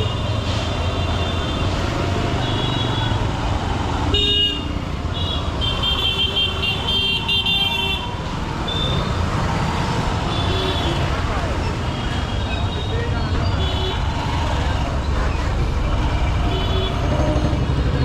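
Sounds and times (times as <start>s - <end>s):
city traffic: 0.0s - 18.0s
vehicle horns honking: 4.1s - 8.1s.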